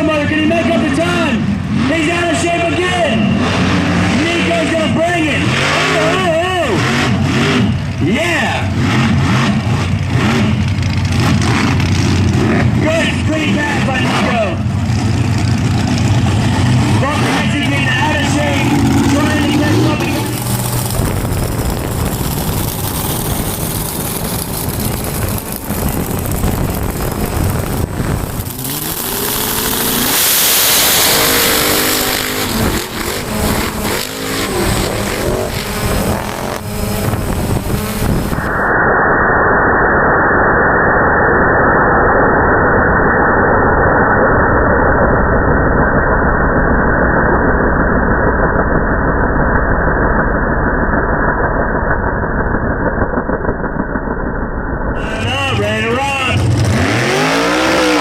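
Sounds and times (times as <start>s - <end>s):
truck engines revving: 0.0s - 38.7s, 50.6s - 58.0s
muffled engine drone: 0.0s - 58.0s.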